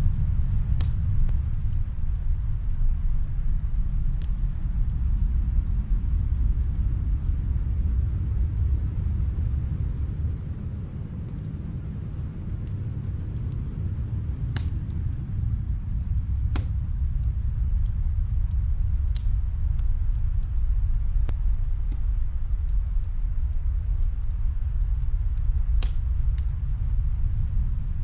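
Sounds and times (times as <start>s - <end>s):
deep steady rumble: 0.0s - 28.0s
fireplace crackling: 0.0s - 28.0s
loud fire pops: 11.3s - 28.0s.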